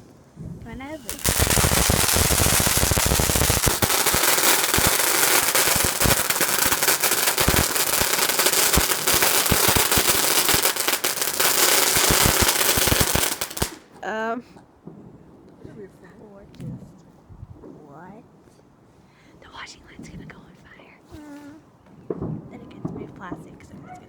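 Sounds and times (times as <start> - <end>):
firework hissing crackle: 0.0 - 14.0.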